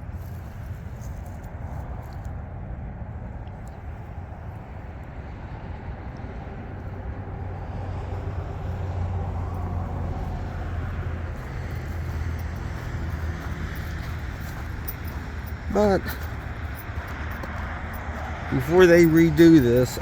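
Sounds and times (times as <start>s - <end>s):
vehicle driving past: 5.2s - 20.0s.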